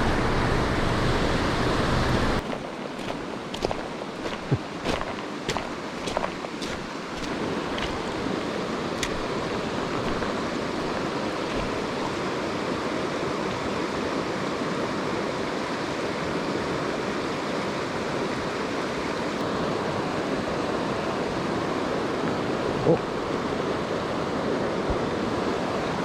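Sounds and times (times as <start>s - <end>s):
stream water rushing: 0.0s - 26.0s.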